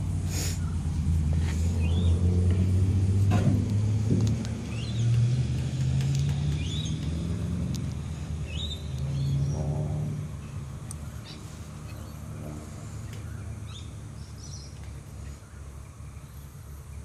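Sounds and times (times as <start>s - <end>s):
vehicle engine humming: 0.0s - 17.0s
small bird chirping: 8.4s - 9.7s.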